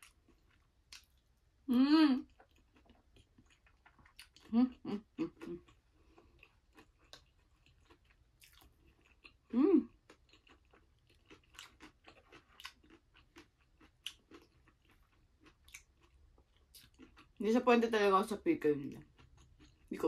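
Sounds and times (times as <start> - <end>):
chewing and mouth clicks: 0.0 - 1.3, 2.2 - 17.4, 18.9 - 20.0
person humming: 1.7 - 2.2, 4.5 - 5.6, 9.5 - 9.9.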